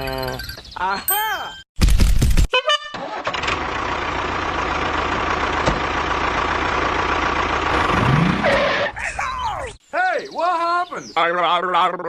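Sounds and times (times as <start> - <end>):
engine running: 3.3 - 9.0.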